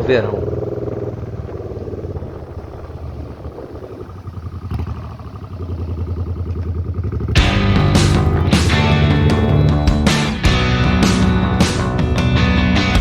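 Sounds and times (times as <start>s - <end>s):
motorcycle engine running: 0.0s - 13.0s
music: 7.4s - 13.0s.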